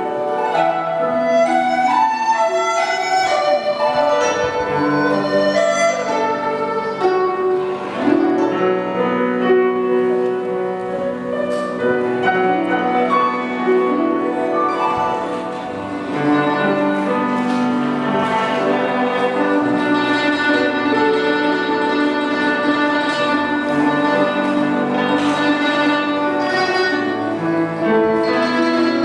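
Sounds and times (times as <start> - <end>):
bamboo flute melody: 0.0 - 8.5, 11.3 - 17.4
guzheng: 0.0 - 29.0
piano accompaniment: 0.0 - 29.0.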